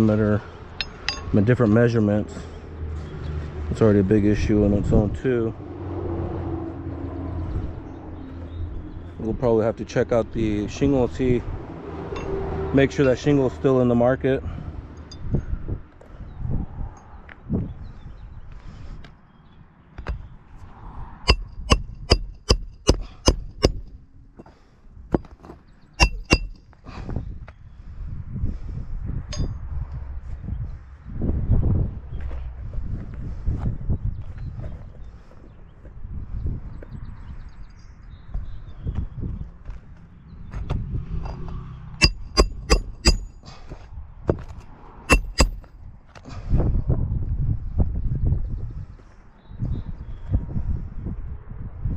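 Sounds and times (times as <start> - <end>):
hammer striking metal: 21.3 - 23.9, 26.0 - 26.6, 42.0 - 43.3, 45.1 - 45.7.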